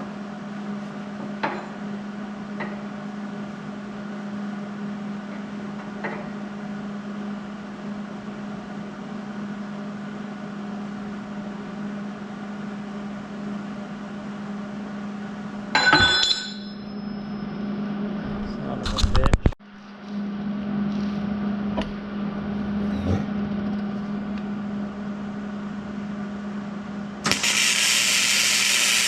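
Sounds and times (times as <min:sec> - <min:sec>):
steel clanking on steel: 0:15.8 - 0:17.2
welder humming and hissing: 0:27.2 - 0:29.0.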